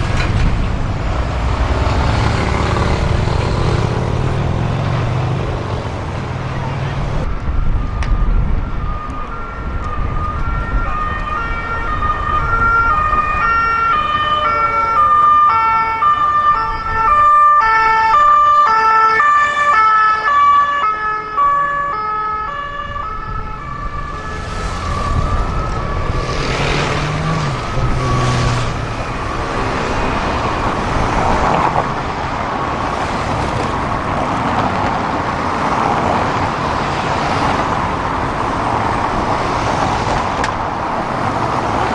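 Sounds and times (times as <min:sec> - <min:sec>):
traffic and road noise: 0:00.0 - 0:41.9
emergency siren hi-lo tone: 0:07.2 - 0:31.1.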